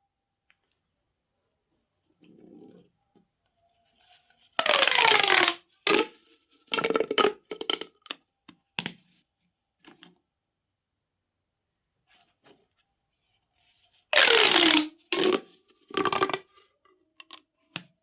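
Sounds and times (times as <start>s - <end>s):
plastic pop tubes rasping: 4.6s - 8.2s, 14.1s - 16.5s.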